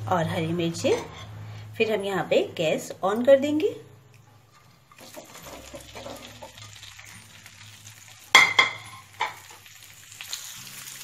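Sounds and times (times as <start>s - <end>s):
chillies sizzling in oil: 3.2s - 11.0s.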